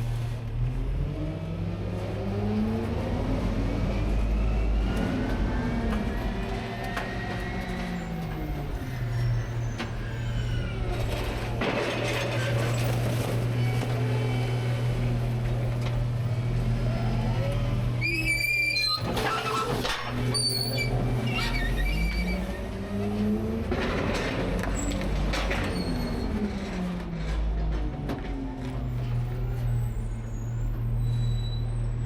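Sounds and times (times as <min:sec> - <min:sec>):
garbage truck engine and hydraulics: 0:00.0 - 0:32.0
high squeal: 0:06.1 - 0:11.5, 0:18.0 - 0:22.7, 0:29.6 - 0:32.0.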